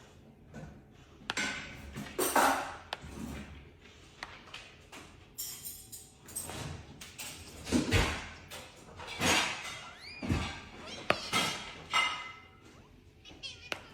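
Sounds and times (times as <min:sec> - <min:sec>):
parrot squawking: 0:10.8 - 0:12.3.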